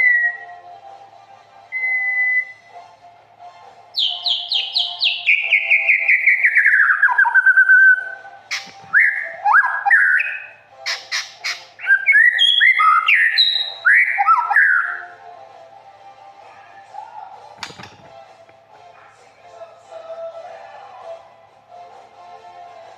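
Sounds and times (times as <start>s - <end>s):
bird singing whistled phrases: 0.0s - 0.5s, 1.7s - 2.6s, 4.0s - 15.1s.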